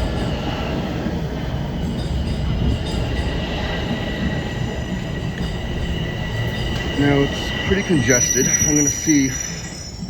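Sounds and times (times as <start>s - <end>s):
subway train rumbling: 0.0s - 10.0s
high wheel squeal: 3.0s - 10.0s.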